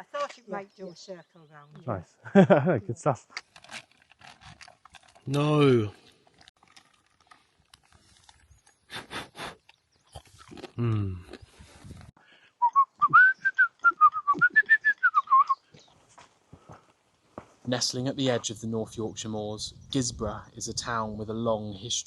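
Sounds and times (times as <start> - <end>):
brief low vocal sound: 10.8 - 11.3
person whistling a tune: 12.6 - 15.6.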